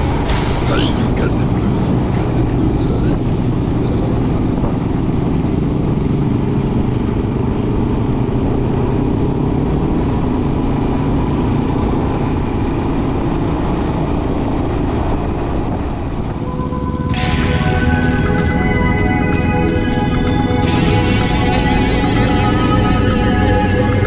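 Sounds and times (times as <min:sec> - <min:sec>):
motorcycle engine droning: 0:00.0 - 0:12.9.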